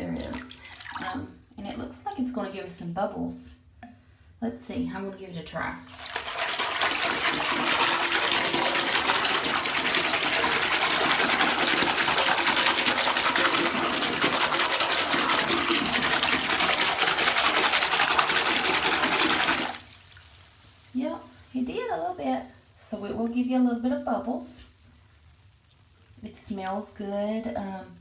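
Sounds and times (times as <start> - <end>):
water rushing into bathtub: 0.0 - 1.4, 5.9 - 23.5.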